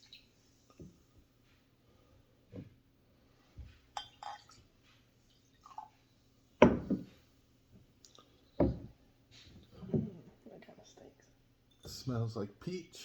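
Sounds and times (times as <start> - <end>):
soft knocks of cups: 6.6 - 7.1.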